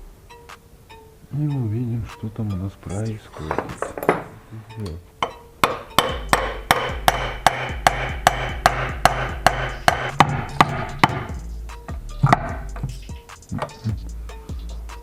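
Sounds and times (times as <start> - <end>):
steady low hum: 1.6 - 15.0
hammer striking: 3.4 - 4.4, 5.2 - 11.4, 12.2 - 13.9.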